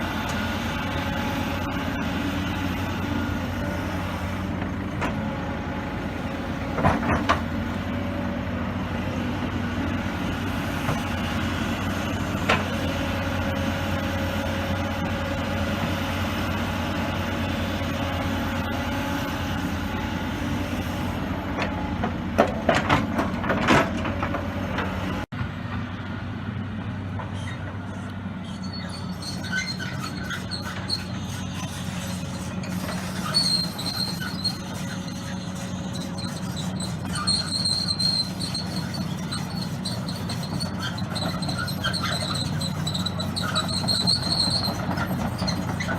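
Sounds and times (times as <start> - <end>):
excavator diesel engine running: 0.0 - 45.9
high metallic squeals: 28.4 - 45.9.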